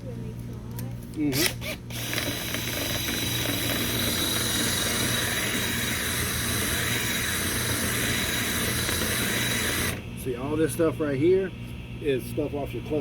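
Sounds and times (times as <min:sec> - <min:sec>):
power drill whirring: 0:01.3 - 0:10.0
brush spinning inside vent duct: 0:01.8 - 0:13.0.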